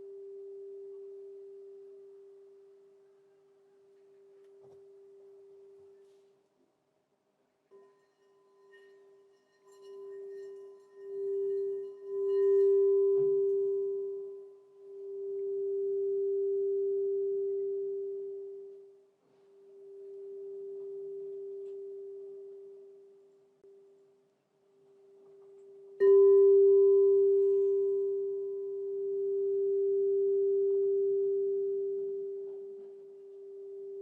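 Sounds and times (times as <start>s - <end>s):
crystal singing bowl ringing: 7.7s - 23.9s, 25.5s - 34.0s.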